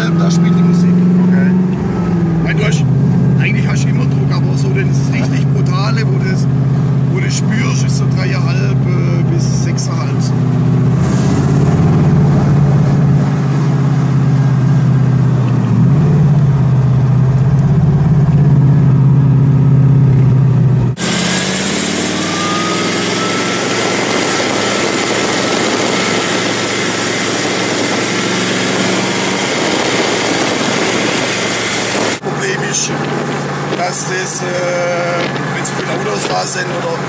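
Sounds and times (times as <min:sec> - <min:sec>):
car engine running at low revs: 0:00.0 - 0:37.0
road noise: 0:00.0 - 0:37.0
wind rush: 0:21.0 - 0:36.5.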